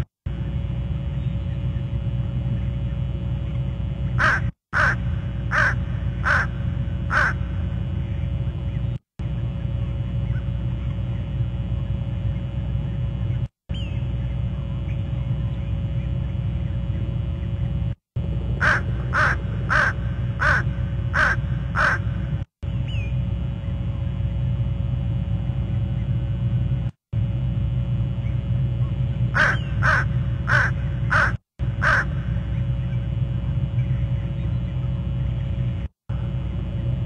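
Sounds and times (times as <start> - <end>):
steady low rumble: 0.0 - 37.0
bird harsh calls: 4.2 - 8.8, 18.6 - 22.2, 29.4 - 33.0.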